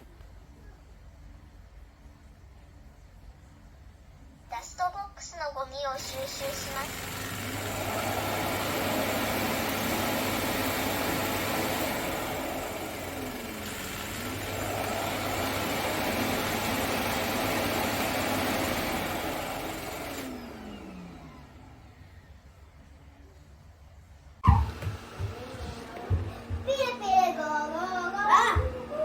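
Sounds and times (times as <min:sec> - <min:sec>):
falling motor whine: 0:06.3 - 0:22.2, 0:24.4 - 0:29.0
vacuum suction motor whoosh: 0:24.4 - 0:29.0.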